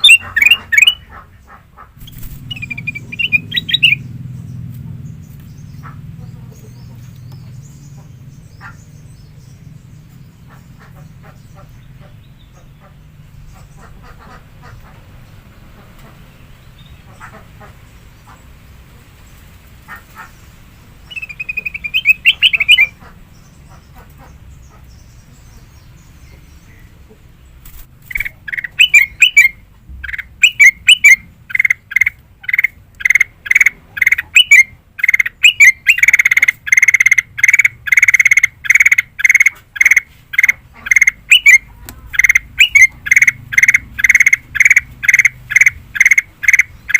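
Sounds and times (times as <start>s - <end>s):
bird chirping: 0.0s - 46.9s
bird singing sharp notes: 2.0s - 5.8s, 21.1s - 23.0s, 28.1s - 36.9s.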